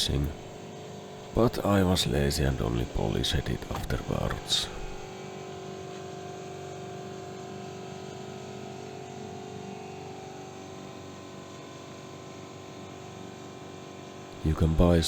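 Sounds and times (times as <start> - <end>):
machine humming: 0.0 - 0.6, 1.2 - 5.1, 14.4 - 15.0.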